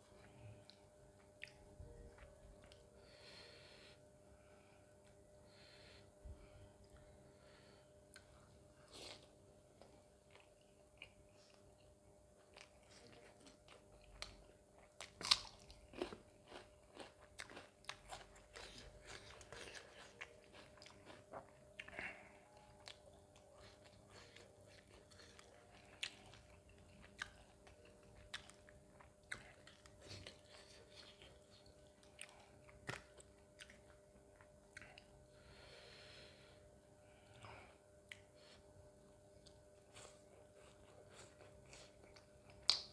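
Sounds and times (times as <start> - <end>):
chewing with wet mouth clicks: 0.6 - 2.8, 9.1 - 35.1, 39.4 - 42.9.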